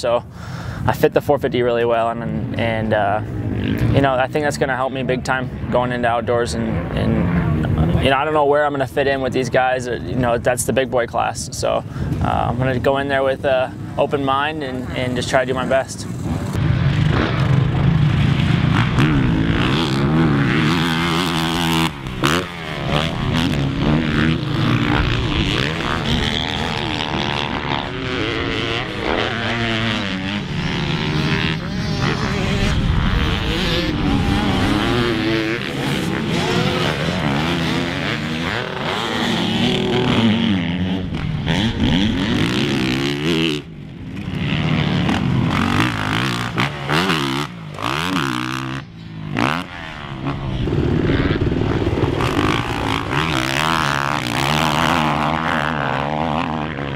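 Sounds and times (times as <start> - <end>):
motocross bike engine revving: 11.9 - 56.9.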